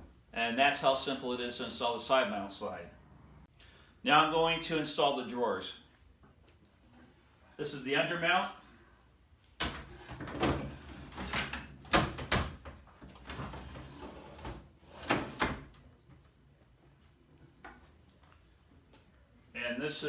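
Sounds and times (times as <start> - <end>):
drawer sliding with knocks and clicks: 9.6 - 15.8.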